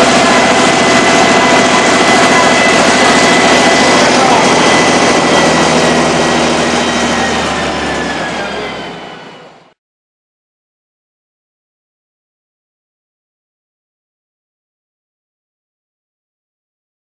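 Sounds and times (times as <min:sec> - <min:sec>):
bus diesel engine droning: 0:00.0 - 0:09.8
held whining tones: 0:00.0 - 0:09.8.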